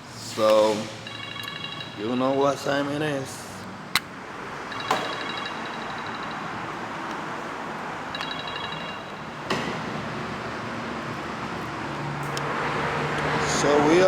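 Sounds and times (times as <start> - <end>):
steady background noise: 0.0 - 14.0
high electronic ringing chime: 1.0 - 2.8, 4.7 - 7.0, 8.1 - 9.5.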